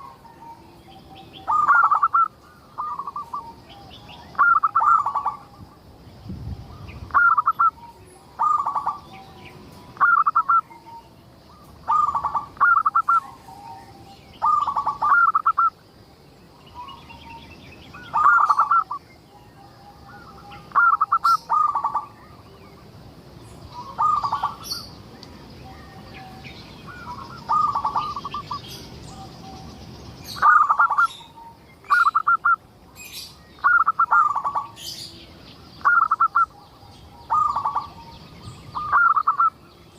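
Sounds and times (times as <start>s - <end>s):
dove cooing: 0.0s - 5.6s, 6.7s - 15.7s, 18.0s - 19.0s, 19.6s - 22.4s, 23.8s - 24.9s, 25.6s - 32.6s, 33.6s - 35.2s, 35.8s - 39.6s
small birds chirping: 0.0s - 39.9s.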